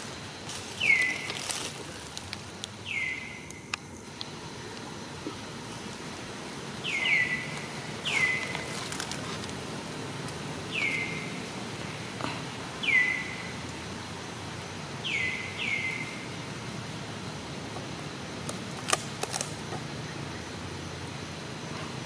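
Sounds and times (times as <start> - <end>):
outdoor background hum: 0.0 - 22.0
bird whistled calls: 0.8 - 1.4, 2.8 - 3.5, 6.8 - 8.6, 10.7 - 11.4, 12.8 - 13.5, 15.0 - 16.2.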